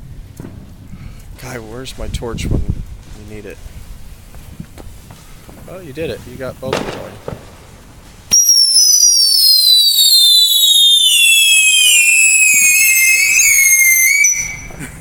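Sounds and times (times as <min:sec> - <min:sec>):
whistling fireworks shrieking: 0:05.0 - 0:15.0.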